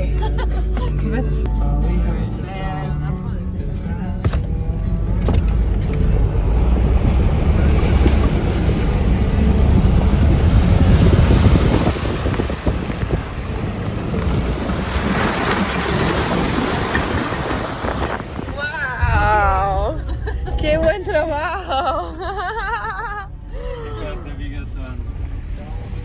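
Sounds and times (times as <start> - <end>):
road noise: 0.0 - 26.0
vehicle engine rumble: 0.0 - 26.0
wind buffeting microphone: 5.5 - 21.6.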